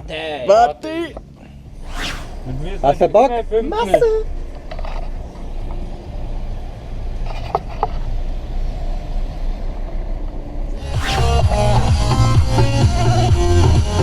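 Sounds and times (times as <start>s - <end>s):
brief pitched sounds: 1.8s - 3.0s, 10.8s - 12.3s.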